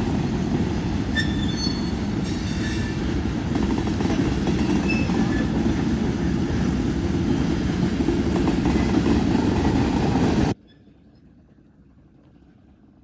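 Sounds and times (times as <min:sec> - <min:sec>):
train rumbling past: 0:00.0 - 0:10.6.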